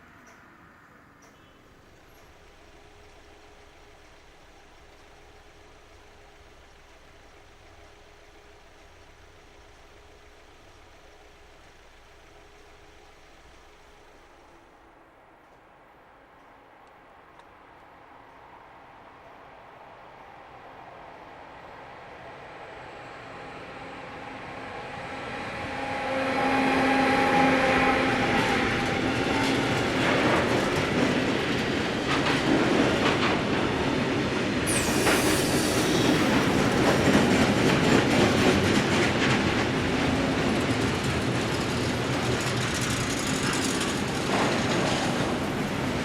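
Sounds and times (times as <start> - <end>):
electric locomotive hum: 0.0 - 46.0
wheels clattering over rail joints: 28.3 - 46.0
high wheel squeal: 34.6 - 37.9.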